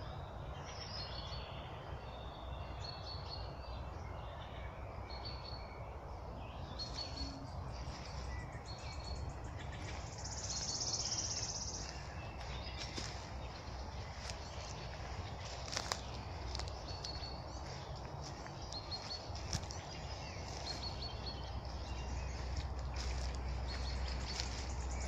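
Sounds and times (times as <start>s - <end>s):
songbirds singing and chirping: 0.0s - 25.0s
low background rumble: 0.4s - 25.0s.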